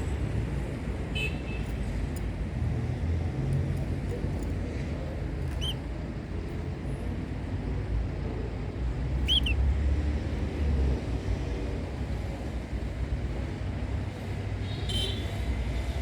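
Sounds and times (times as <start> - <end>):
canary chirp: 5.5 - 5.8, 9.2 - 9.6.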